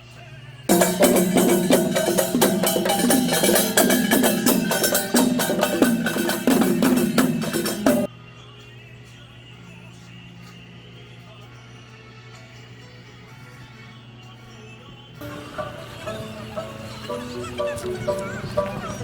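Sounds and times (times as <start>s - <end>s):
drum and wood-block strikes: 0.7s - 8.1s, 15.2s - 19.0s.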